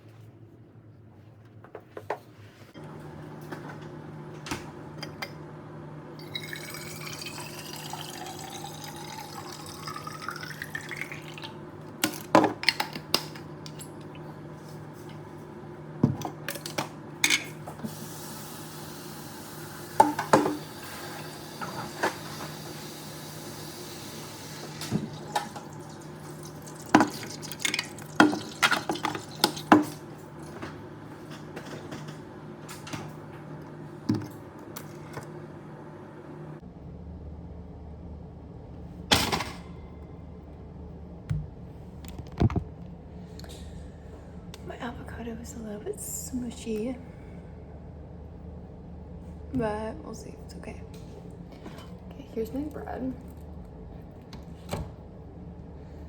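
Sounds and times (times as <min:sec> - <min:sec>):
liquid pouring into container: 0:06.2 - 0:11.6, 0:24.6 - 0:30.0
steady low hum: 0:29.5 - 0:56.0.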